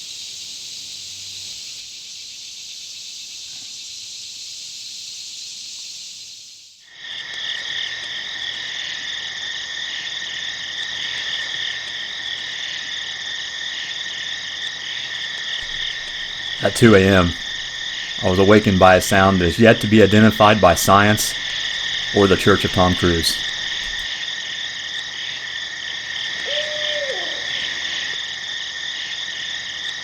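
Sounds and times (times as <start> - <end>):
outdoor ambience hiss: 0.0 - 30.0
crickets chirping: 6.9 - 30.0
frogs calling: 15.4 - 24.1.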